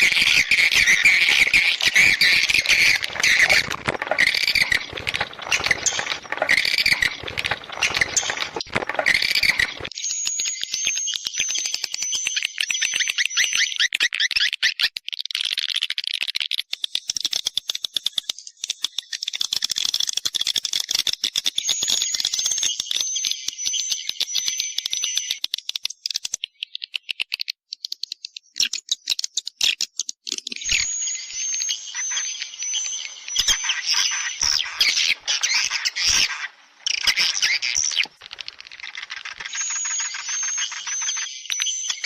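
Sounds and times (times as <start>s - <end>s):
swiftlets twittering: 0.0s - 10.0s, 30.7s - 42.0s.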